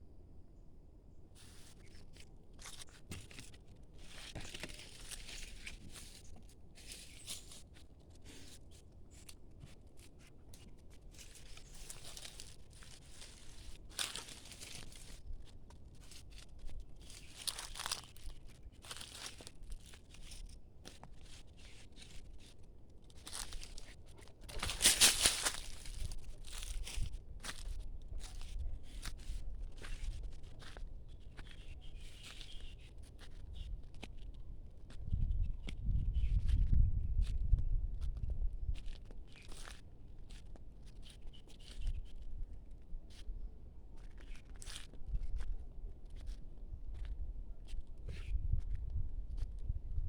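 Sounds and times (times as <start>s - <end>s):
dry leaves crunching underfoot: 1.4s - 10.1s, 10.8s - 30.8s, 38.8s - 41.8s.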